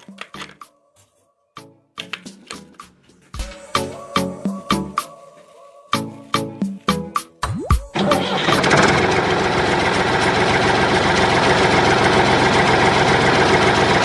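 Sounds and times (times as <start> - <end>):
engine starting and chugging: 7.9 - 14.0.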